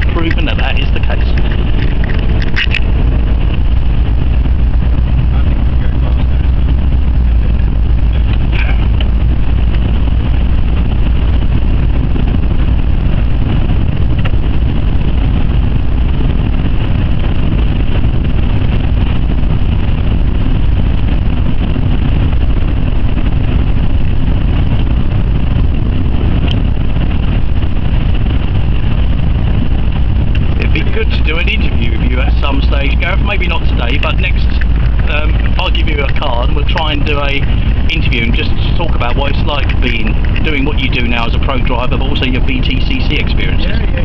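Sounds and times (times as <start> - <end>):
car engine rumble: 0.0 - 44.0
tyre and wind noise: 0.0 - 44.0.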